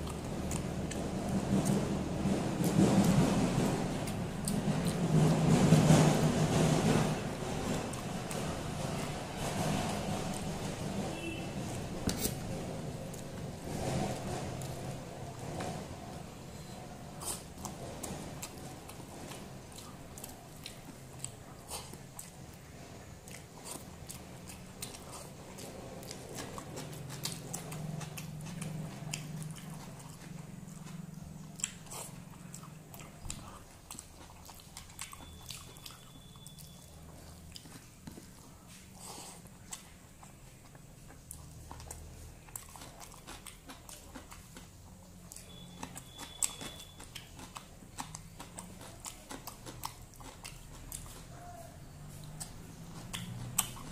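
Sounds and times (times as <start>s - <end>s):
person chewing food: 0.0s - 53.9s
wet mouth clicks and crunches: 52.1s - 53.9s.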